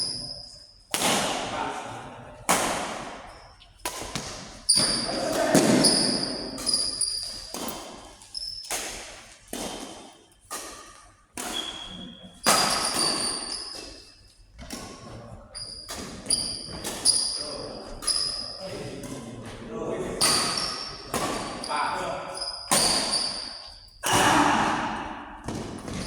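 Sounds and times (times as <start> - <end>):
racket hits ringing in hall: 2.5 - 7.0, 9.6 - 13.7
shoes squeaking on court: 3.3 - 8.7, 11.5 - 18.6, 20.2 - 24.0.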